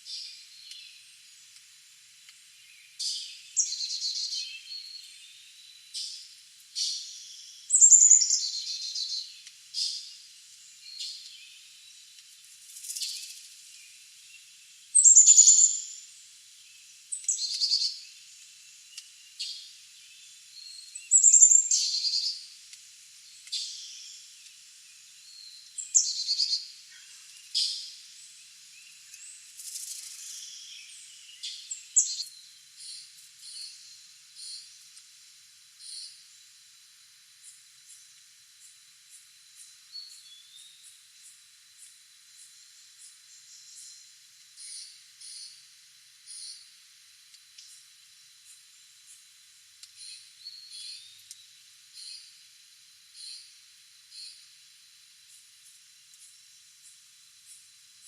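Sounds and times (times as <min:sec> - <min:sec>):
faint bird chirps: 0:02.5 - 0:12.2, 0:12.8 - 0:22.6, 0:23.2 - 0:35.0, 0:35.8 - 0:36.4, 0:37.4 - 0:46.7, 0:49.9 - 0:52.4, 0:53.1 - 0:54.5.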